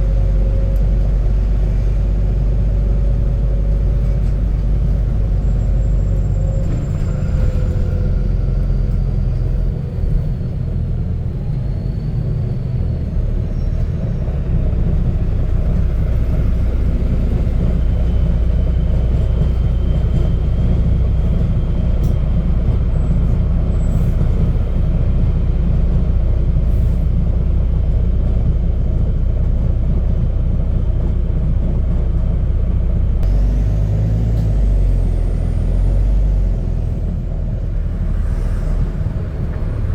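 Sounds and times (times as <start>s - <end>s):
bus diesel engine rumbling: 0.0s - 39.9s.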